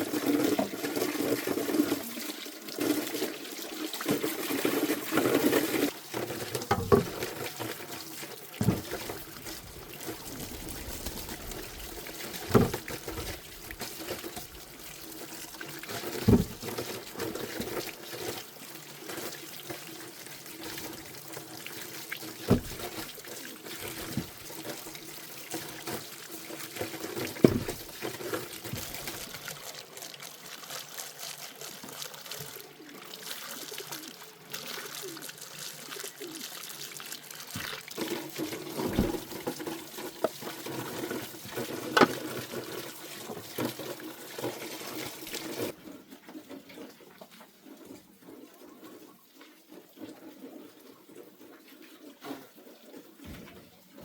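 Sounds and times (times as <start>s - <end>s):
water pouring and trickling: 0.0s - 54.0s
sharp knocks or splashes: 6.5s - 7.5s, 8.6s - 14.7s, 16.1s - 17.0s, 22.4s - 24.5s, 27.2s - 29.3s, 37.5s - 40.5s, 41.7s - 42.3s.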